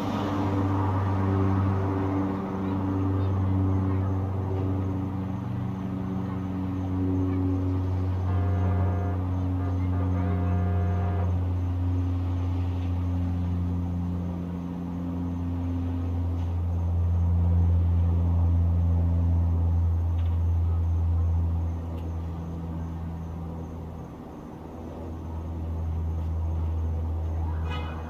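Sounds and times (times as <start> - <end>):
distant traffic rumble: 0.0 - 28.0
faint insect trill: 0.1 - 28.0
horn-like tone: 8.1 - 11.6, 27.5 - 28.0.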